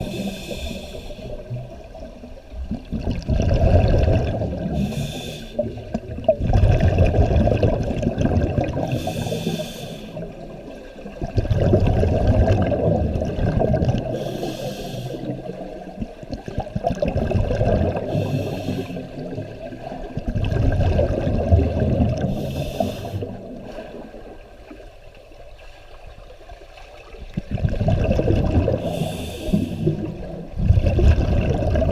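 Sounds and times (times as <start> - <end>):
regulator inhalation hiss: 0.0 - 1.4, 4.8 - 5.7, 8.9 - 10.2, 14.2 - 15.4, 18.1 - 19.2, 22.3 - 23.4, 28.8 - 30.1
exhaled bubbles rushing: 1.4 - 5.0, 5.6 - 9.1, 10.5 - 14.3, 15.2 - 24.4, 27.0 - 31.9.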